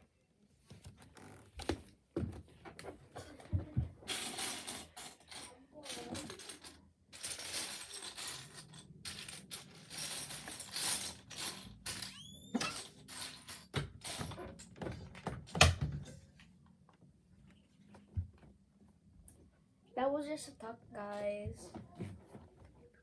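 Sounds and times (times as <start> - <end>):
plastic pieces rattling and clicking: 4.0 - 15.6.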